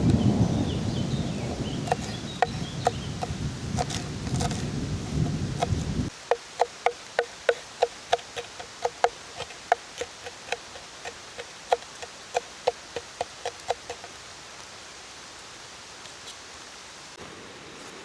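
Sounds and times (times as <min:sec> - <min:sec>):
rain hissing: 0:00.0 - 0:18.0
sharp irregular taps: 0:01.9 - 0:04.6, 0:05.6 - 0:14.1.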